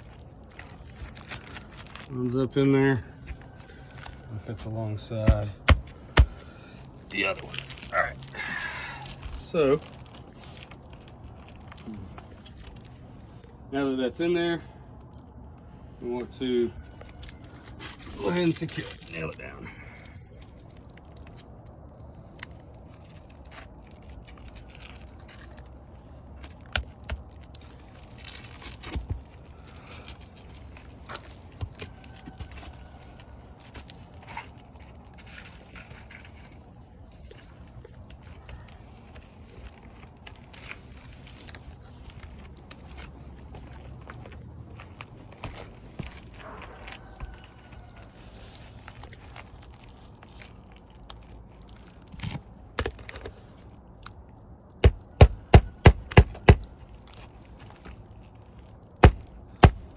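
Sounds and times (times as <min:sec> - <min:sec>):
hammer striking roofing nail: 0:54.8 - 0:56.7, 0:59.0 - 0:59.9.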